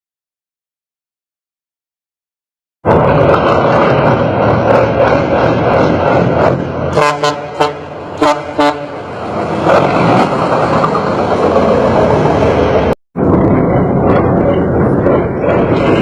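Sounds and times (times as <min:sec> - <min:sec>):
truck engine running loudly: 0:02.8 - 0:16.0
short horn toots: 0:07.0 - 0:09.0.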